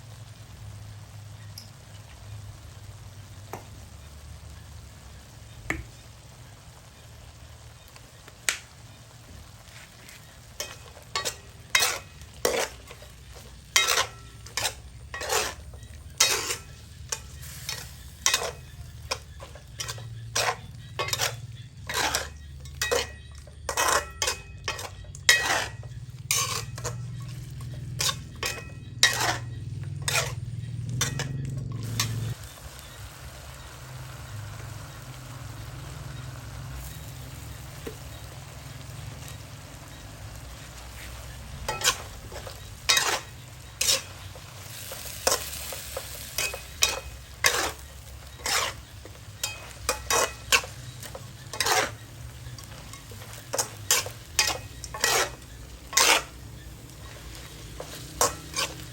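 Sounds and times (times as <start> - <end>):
metal spatula scraping a pan: 7.9 - 32.9, 33.5 - 58.9.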